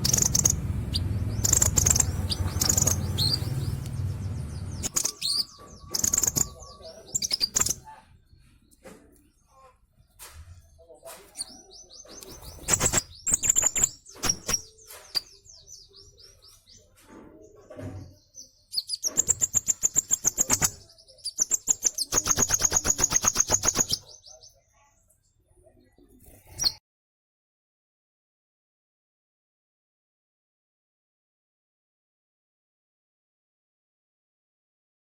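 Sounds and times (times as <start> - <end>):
bird chirping and trilling: 0.0 - 8.5, 11.3 - 16.9, 18.0 - 24.6, 26.2 - 26.8.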